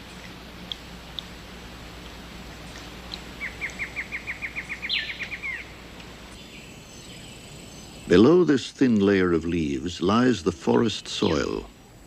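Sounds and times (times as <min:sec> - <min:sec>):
rainforest ambience hiss: 0:00.0 - 0:12.0
bird trilling: 0:03.4 - 0:05.7.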